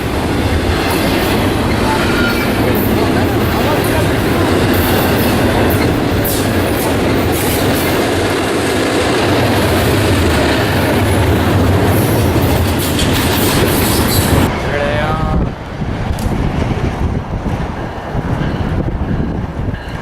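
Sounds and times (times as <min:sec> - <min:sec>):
train wheels clattering: 0:00.0 - 0:14.6.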